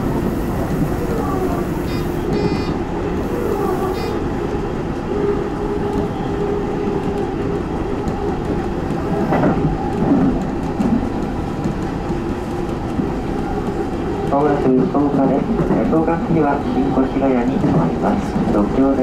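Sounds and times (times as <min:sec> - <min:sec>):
train motor and gear hum: 0:00.0 - 0:19.0
train wheels clattering on rails: 0:05.8 - 0:19.0.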